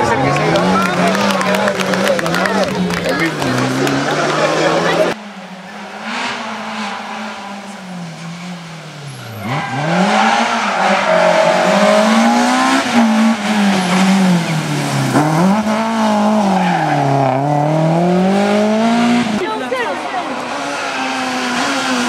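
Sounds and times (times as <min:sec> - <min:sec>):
faint rally car engine: 0:00.0 - 0:22.0
rally car revving hard: 0:00.0 - 0:22.0.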